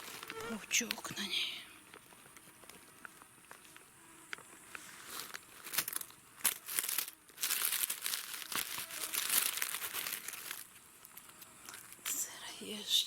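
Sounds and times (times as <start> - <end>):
dry leaves rustling: 0.0 - 0.9, 4.8 - 12.0.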